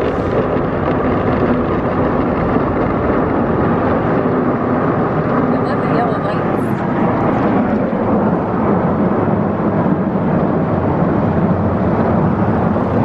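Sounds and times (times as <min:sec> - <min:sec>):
car wash machinery: 0:00.0 - 0:13.0.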